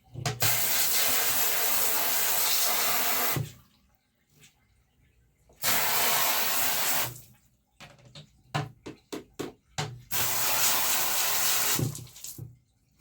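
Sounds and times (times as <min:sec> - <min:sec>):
running water in a bathtub: 0:00.0 - 0:13.0.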